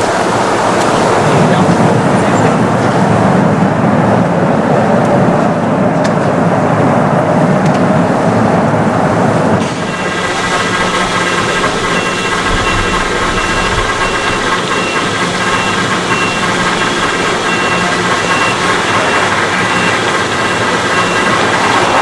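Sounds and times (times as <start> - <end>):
jet engines running: 0.0 - 22.0
short high beep: 9.8 - 16.5.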